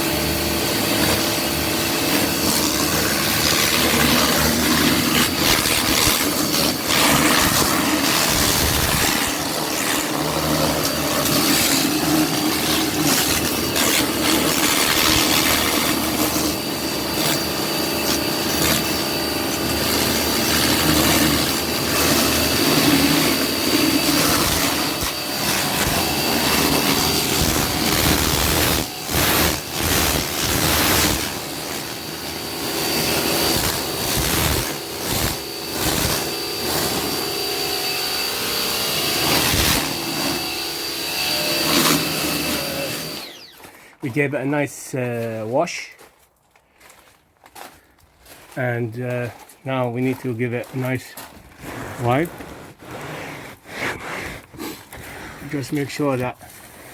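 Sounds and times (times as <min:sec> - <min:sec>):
pressure washer spraying water: 0:00.0 - 0:43.6.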